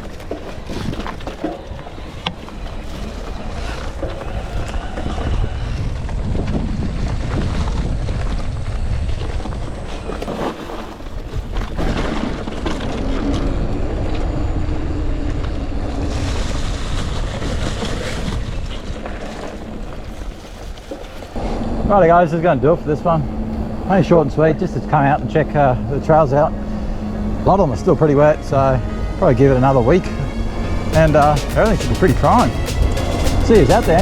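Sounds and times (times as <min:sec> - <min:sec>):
bike tyres rolling on dirt: 0:00.0 - 0:34.0
wind buffeting microphone: 0:00.0 - 0:34.0
bike knocking over rough ground: 0:06.3 - 0:13.5.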